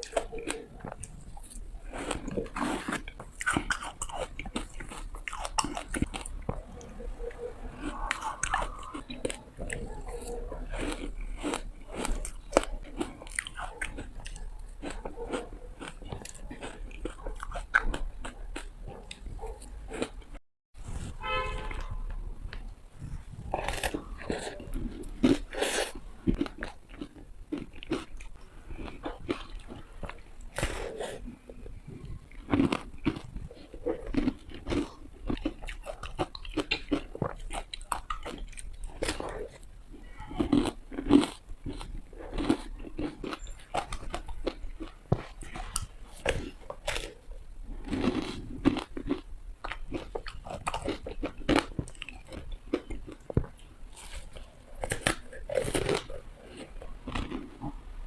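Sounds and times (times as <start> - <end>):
person crunching ice: 0.0 - 6.6, 40.3 - 57.8
teeth crunching ice: 0.0 - 20.4, 23.5 - 57.8.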